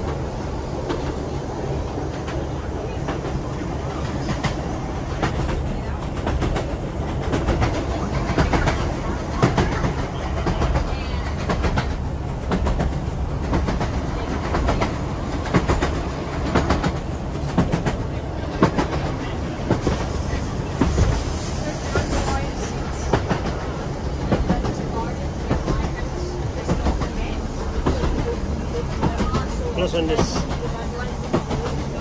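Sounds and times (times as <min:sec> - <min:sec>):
train rumbling: 0:00.0 - 0:32.0
wheels clicking over rail joints: 0:21.9 - 0:32.0.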